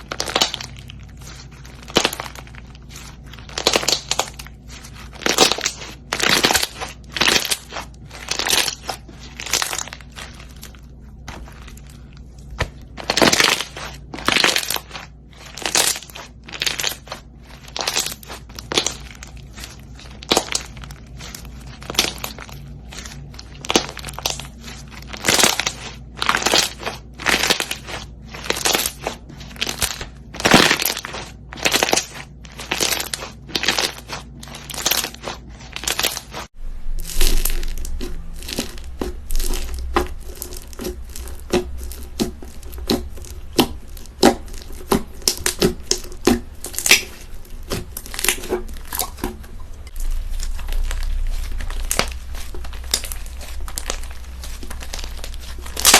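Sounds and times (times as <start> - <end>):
crunchy slime crackling: 0.0 - 55.9
low hum: 36.4 - 55.9.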